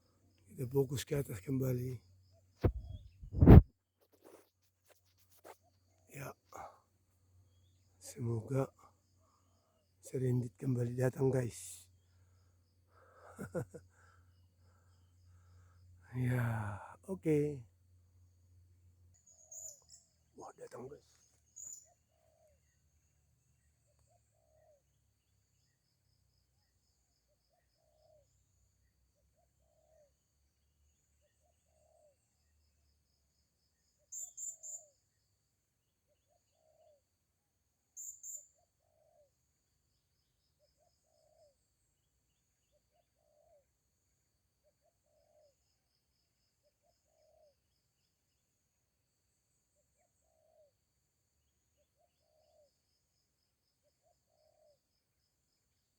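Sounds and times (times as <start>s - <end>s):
short low bird call: 2.6s - 3.6s
shrill bird chirps: 19.2s - 22.6s, 34.1s - 35.0s, 38.0s - 39.1s.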